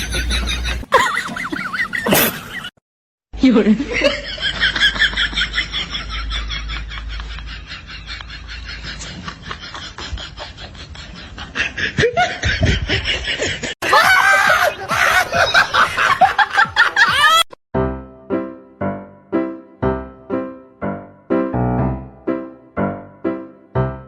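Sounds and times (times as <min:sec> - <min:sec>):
snickering laughter: 0:00.0 - 0:02.7, 0:03.8 - 0:17.5
music: 0:17.8 - 0:24.0
piano notes: 0:17.8 - 0:24.0.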